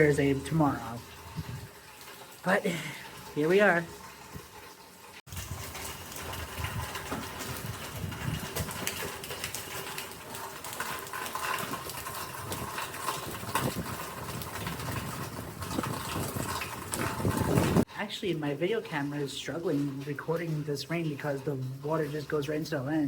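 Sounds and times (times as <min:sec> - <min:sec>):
wind buffeting microphone: 0:00.0 - 0:01.8, 0:05.3 - 0:09.8, 0:11.4 - 0:17.9
storm wind: 0:00.0 - 0:02.0, 0:05.3 - 0:17.9
rain: 0:00.0 - 0:23.0.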